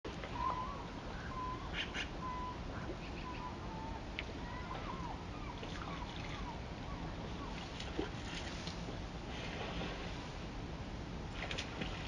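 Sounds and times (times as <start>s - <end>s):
birds whistling: 0.3s - 7.6s.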